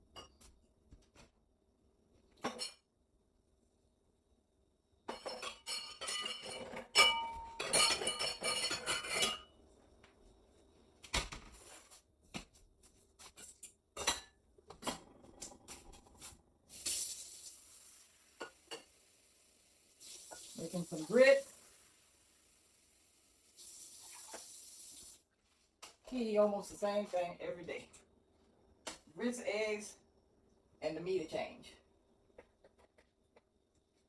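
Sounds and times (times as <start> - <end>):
dishes and utensils clinking: 5.1 - 9.5.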